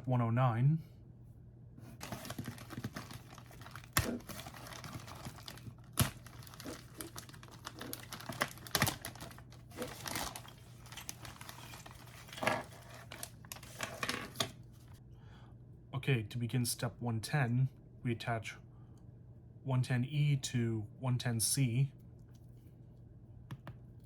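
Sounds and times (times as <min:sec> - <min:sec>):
packaging rustling: 0:02.0 - 0:15.0.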